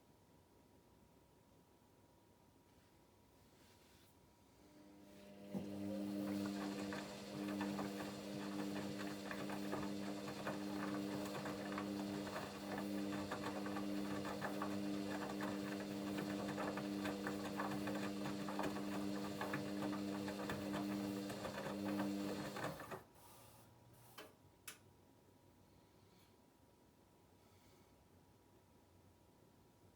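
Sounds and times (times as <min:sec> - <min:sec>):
washing machine motor hum: 0:04.8 - 0:23.1.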